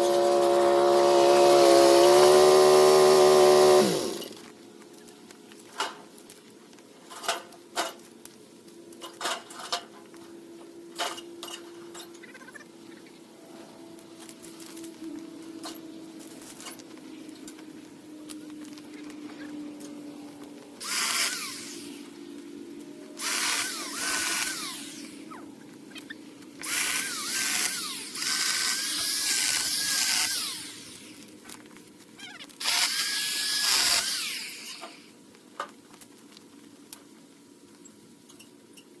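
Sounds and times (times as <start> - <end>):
electric power tool motor: 0.0 - 4.4, 20.8 - 22.1, 23.2 - 25.3, 26.6 - 31.2, 32.6 - 35.1.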